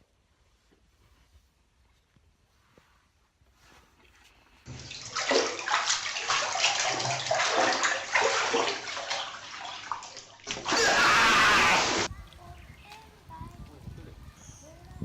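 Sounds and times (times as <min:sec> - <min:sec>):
water splashing and sloshing: 0:04.7 - 0:12.1.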